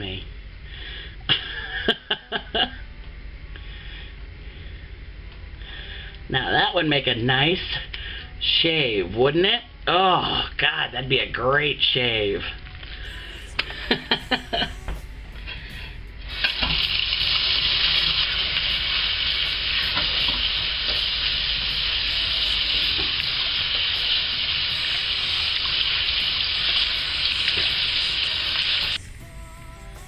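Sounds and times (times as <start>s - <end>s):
water running from a tap: 16.4s - 29.0s.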